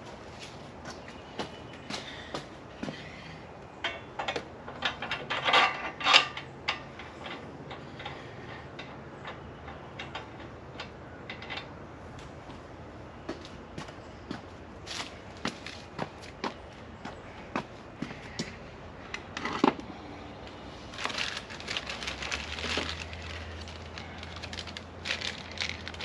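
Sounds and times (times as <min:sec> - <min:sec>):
hard parts and packaging handled: 0:20.8 - 0:26.0.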